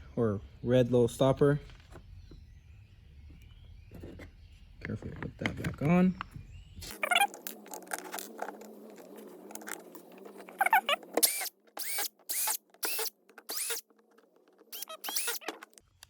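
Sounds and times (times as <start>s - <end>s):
rustling of handling: 3.4s - 16.0s
squeaky trigger clicks: 10.6s - 13.8s, 14.7s - 15.8s.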